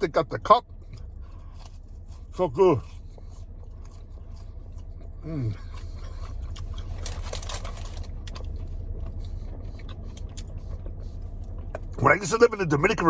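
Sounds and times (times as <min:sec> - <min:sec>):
steady low hum: 0:00.0 - 0:13.0
crunchy crackly rustle: 0:05.8 - 0:12.0.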